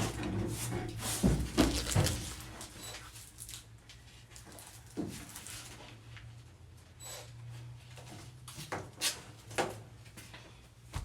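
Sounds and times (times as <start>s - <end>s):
handling knocks and thumps: 0.0s - 2.4s.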